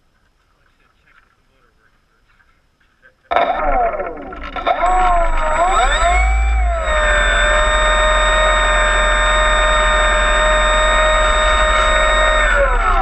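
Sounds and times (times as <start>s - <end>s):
electric motor and propeller whine: 3.4s - 13.0s.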